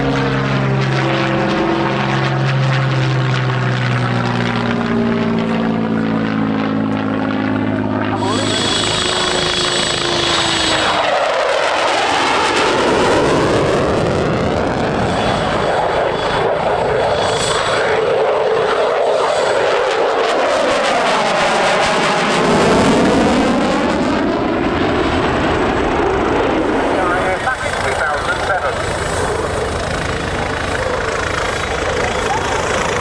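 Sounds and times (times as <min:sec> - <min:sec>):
aircraft flying past: 0:00.0 - 0:33.0.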